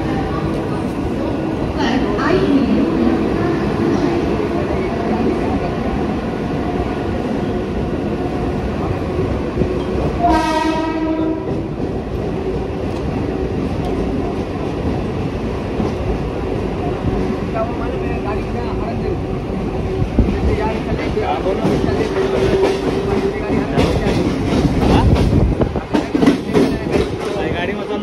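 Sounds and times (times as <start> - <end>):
train running on rails: 0.0 - 28.0
train horn: 10.2 - 11.7.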